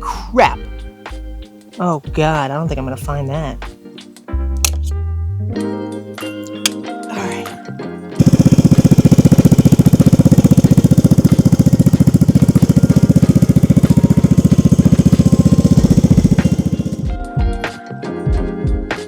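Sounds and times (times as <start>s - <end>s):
scooter engine idling: 8.2s - 17.2s.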